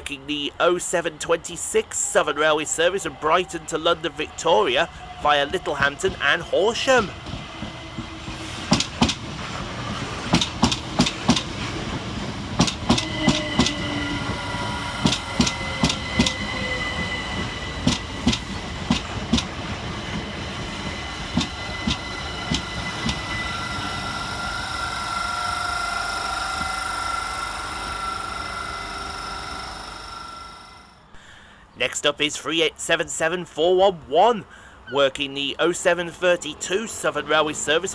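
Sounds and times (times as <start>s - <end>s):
train wheels clacking over rail joints: 7.0s - 14.4s, 15.0s - 16.5s, 17.4s - 23.4s
electric traction whine: 12.4s - 31.1s.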